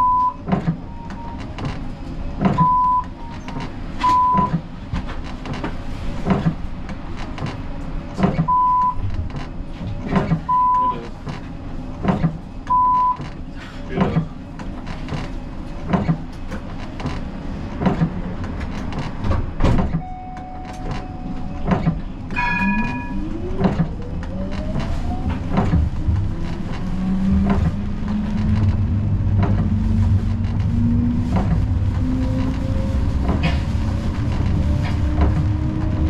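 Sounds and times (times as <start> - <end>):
tram wheels clicking over rail joints: 0.4 - 36.0
brief ringing tone: 20.0 - 21.6, 22.4 - 23.2.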